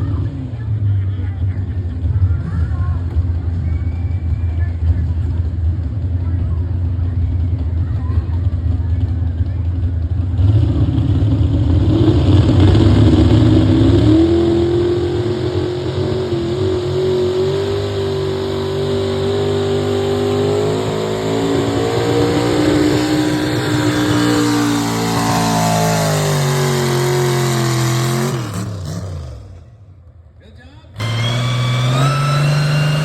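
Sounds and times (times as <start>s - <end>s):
vehicle engine revving under load: 10.2s - 30.0s, 30.9s - 33.0s.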